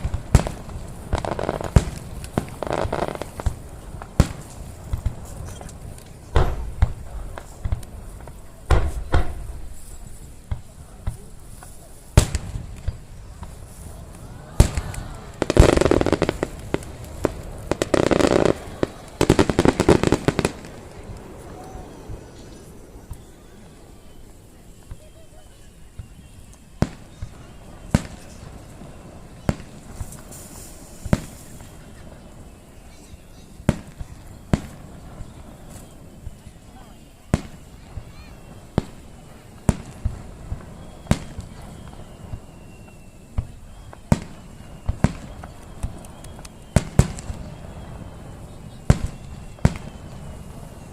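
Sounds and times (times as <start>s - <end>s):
firework boom: 0.0s - 9.8s
firework crackling: 0.0s - 50.9s.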